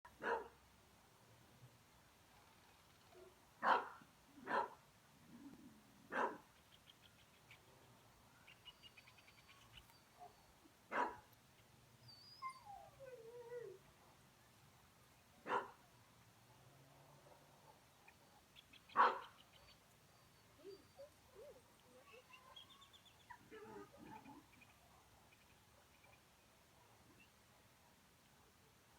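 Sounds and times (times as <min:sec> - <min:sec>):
puppy barking: 0:00.2 - 0:00.5, 0:03.6 - 0:04.8, 0:06.1 - 0:06.4, 0:10.9 - 0:11.2, 0:15.5 - 0:15.8, 0:19.0 - 0:19.3
puppy whining: 0:12.1 - 0:13.8.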